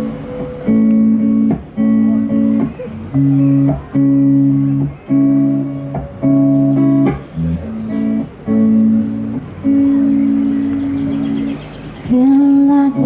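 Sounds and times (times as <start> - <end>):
guitar playing held chords: 0.0 - 13.0.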